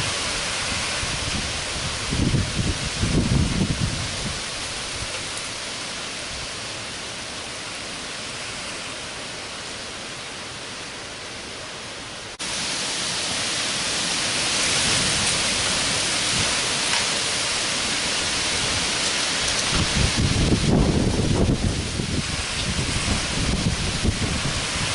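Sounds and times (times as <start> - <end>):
wind gusts buffeting microphone: 0.0 - 5.6, 13.9 - 24.9
heavy rain pouring: 0.0 - 24.9.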